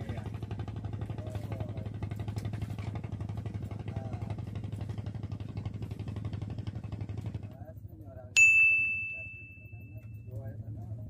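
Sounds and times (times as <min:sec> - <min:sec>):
low engine hum: 0:00.0 - 0:11.0
small bell ding: 0:08.4 - 0:10.5.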